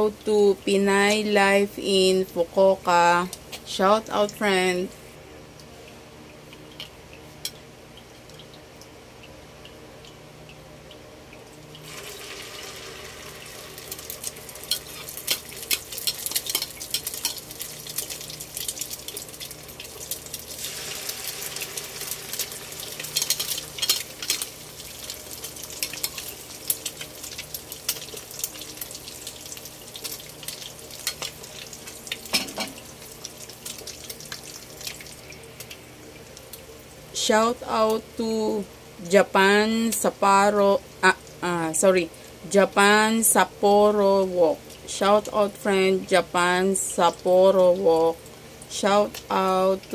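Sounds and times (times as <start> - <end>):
batter sizzling in hot oil: 11.6 - 49.9.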